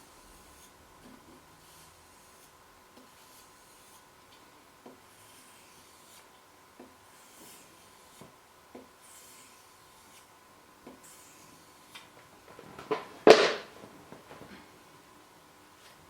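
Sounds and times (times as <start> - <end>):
knife blade rasping on whetstone: 0.1 - 4.1, 5.1 - 6.3, 7.1 - 8.3, 9.0 - 10.3, 10.9 - 11.9.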